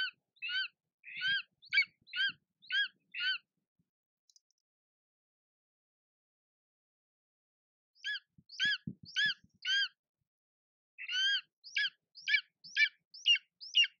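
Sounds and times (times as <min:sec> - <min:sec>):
bird calling: 0:00.0 - 0:03.4, 0:08.0 - 0:10.0, 0:11.0 - 0:14.0.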